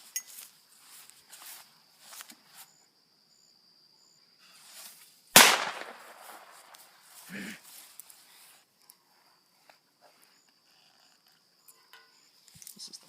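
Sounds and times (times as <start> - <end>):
firecracker bang: 5.4 - 6.8.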